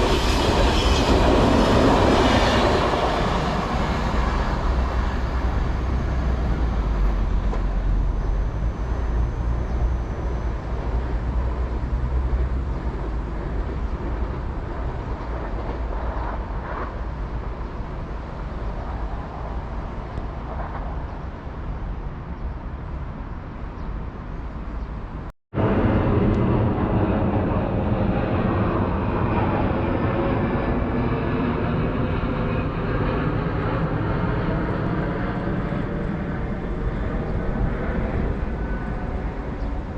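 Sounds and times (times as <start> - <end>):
passing train rushing: 0.0 - 20.8
train rumbling past: 0.0 - 23.5.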